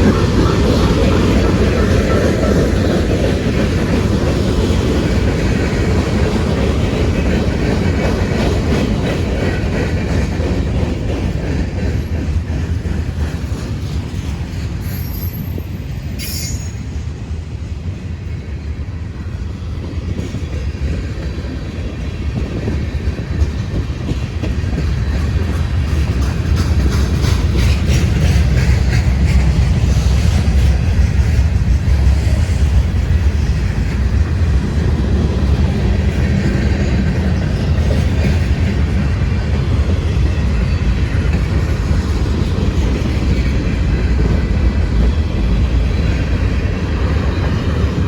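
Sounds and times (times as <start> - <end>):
wheel clickety-clack: 0.0 - 16.8, 19.7 - 48.0
train wheels rumbling on rails: 0.0 - 48.0
wheel squeal: 14.8 - 16.8.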